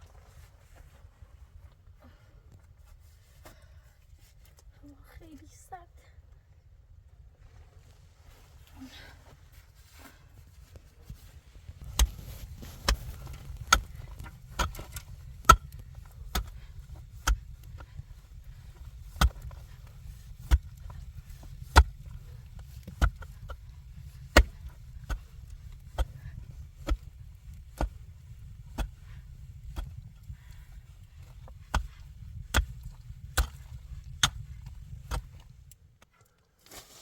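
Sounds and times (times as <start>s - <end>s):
low steady rumble: 0.0s - 36.1s
axe chopping wood: 11.8s - 28.1s, 28.7s - 30.1s, 30.8s - 35.5s.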